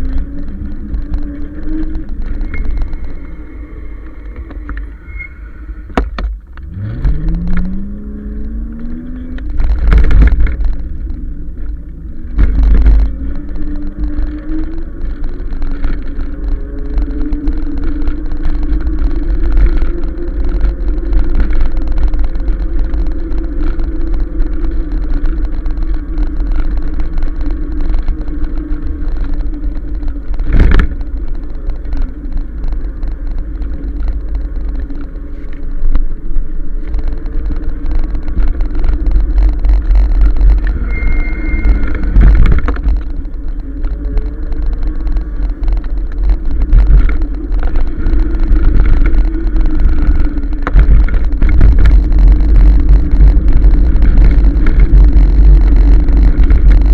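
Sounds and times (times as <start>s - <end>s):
electric bike motor whine: 0.0s - 9.6s
wind rumble on microphone: 0.0s - 56.9s
brief high squeal: 4.8s - 5.9s, 40.8s - 42.2s.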